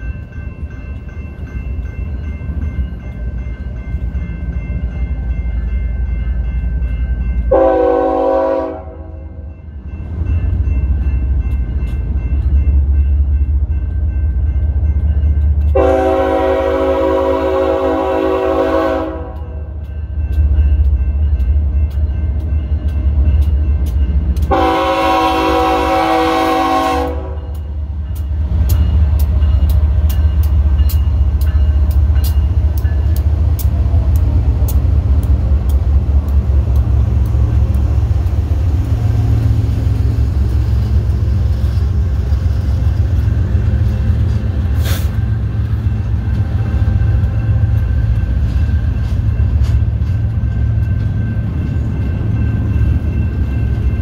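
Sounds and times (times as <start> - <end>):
train horn blast: 7.5 - 9.4, 15.7 - 19.6, 24.4 - 27.6
locomotive engine rumble: 9.6 - 54.0
wheels clicking on rails: 27.4 - 54.0.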